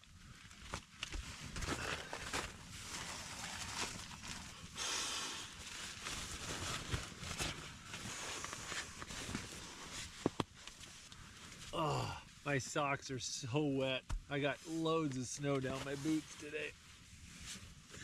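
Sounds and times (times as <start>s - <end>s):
rustling: 0.3s - 11.7s.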